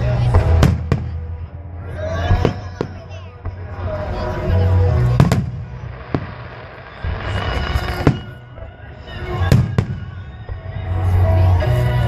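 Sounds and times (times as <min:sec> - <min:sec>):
faint music: 0:00.0 - 0:12.0
fireworks bursting: 0:00.2 - 0:01.4, 0:04.7 - 0:11.2.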